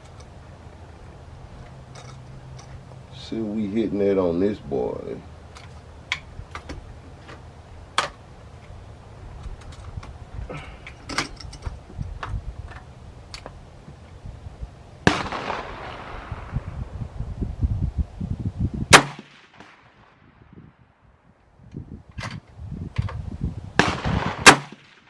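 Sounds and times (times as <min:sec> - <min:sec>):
rifle shots: 0:15.0 - 0:16.7, 0:18.9 - 0:20.1, 0:23.8 - 0:25.0.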